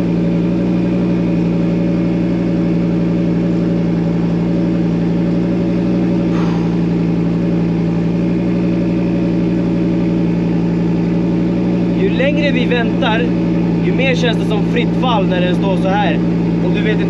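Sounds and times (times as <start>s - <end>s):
rally car engine idling: 0.0s - 17.0s.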